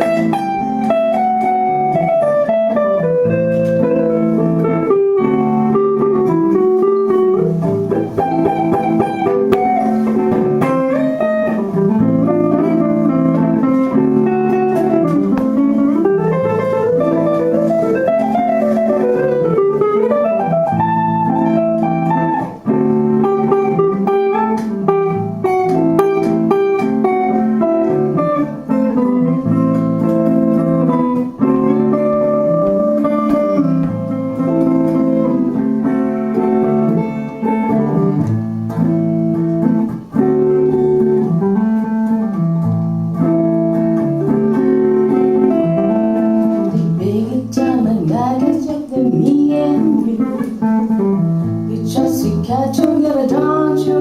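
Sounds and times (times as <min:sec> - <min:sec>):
guitar playing plucked melody: 0:00.0 - 0:54.0.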